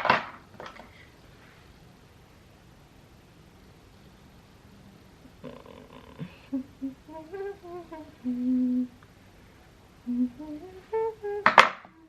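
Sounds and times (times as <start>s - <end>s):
woman humming: 5.2s - 9.0s, 10.0s - 12.0s.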